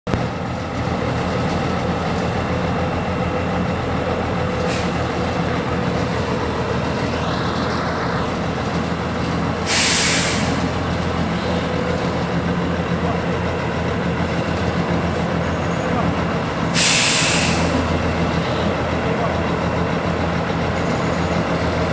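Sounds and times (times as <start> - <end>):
heavy diesel engines running: 0.1 - 21.9
loud hiss: 9.6 - 10.8, 16.6 - 18.0.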